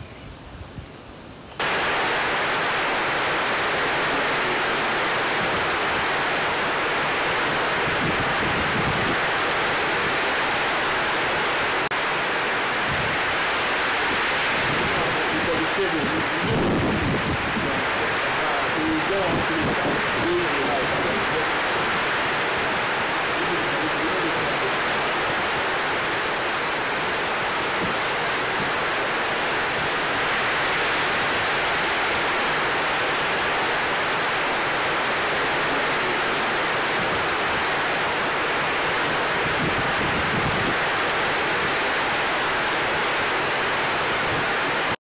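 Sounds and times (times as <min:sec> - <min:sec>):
heavy rain on vegetation: 0:01.1 - 0:45.0.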